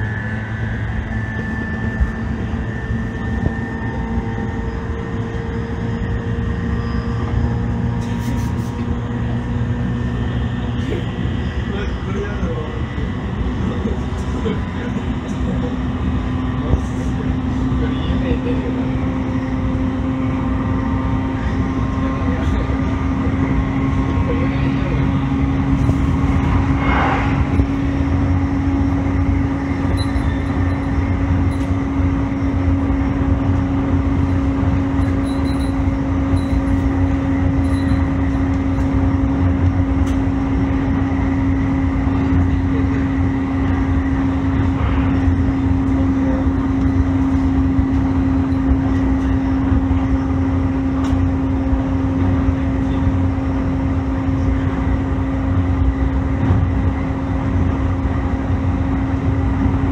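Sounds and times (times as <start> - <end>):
electric train rumble and hum: 0.0 - 59.9.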